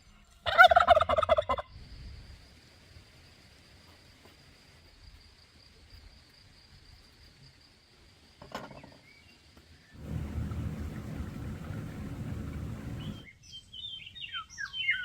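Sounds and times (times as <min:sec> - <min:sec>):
loud low noise: 0:10.0 - 0:13.2.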